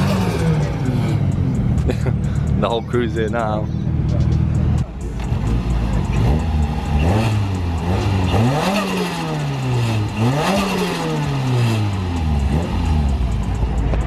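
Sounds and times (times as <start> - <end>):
turbocharged car engine revving: 0.0 - 14.0.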